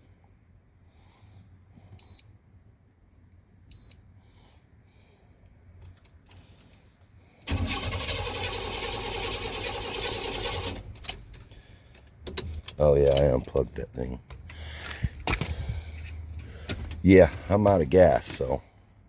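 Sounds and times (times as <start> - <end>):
engine cranking on starter: 7.4 - 13.2.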